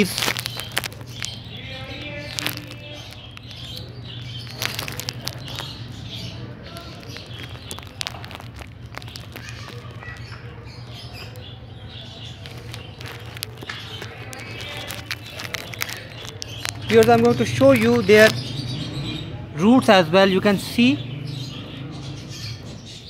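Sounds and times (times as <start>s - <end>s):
sharp clicks: 0.0s - 11.5s, 12.2s - 18.5s
small birds chirping: 0.0s - 23.0s.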